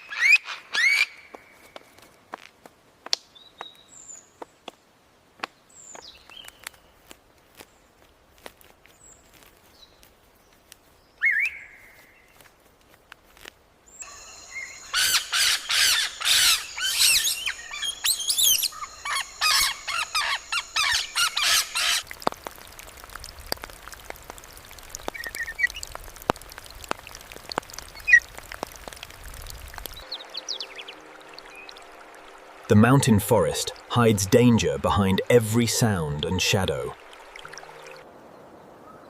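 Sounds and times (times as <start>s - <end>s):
bird calling loudly: 14.5s - 22.0s
faint ticks: 22.1s - 30.0s.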